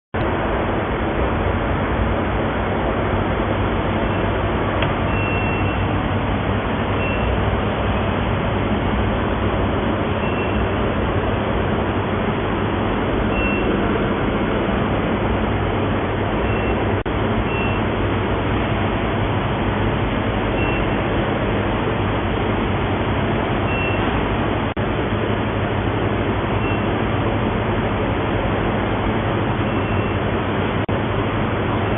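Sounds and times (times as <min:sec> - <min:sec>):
furnace running noise: 0:00.2 - 0:31.9
faint short high tones: 0:05.1 - 0:05.8, 0:13.3 - 0:13.8.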